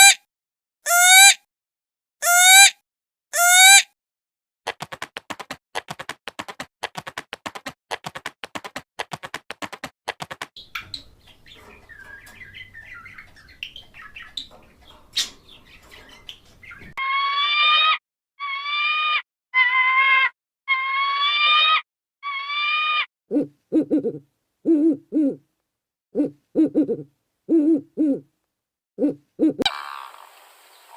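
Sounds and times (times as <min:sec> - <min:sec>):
soft bird twittering: 0:10.6 - 0:17.0.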